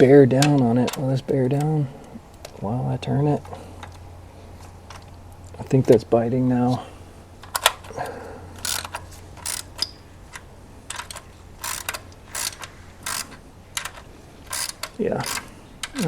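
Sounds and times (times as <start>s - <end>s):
ratchet wrench clicking: 7.4s - 16.0s.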